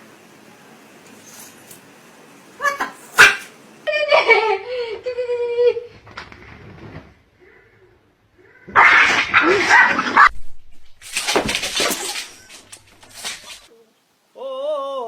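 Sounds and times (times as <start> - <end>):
dog vocalising roughly: 2.6 - 3.5, 8.7 - 10.3.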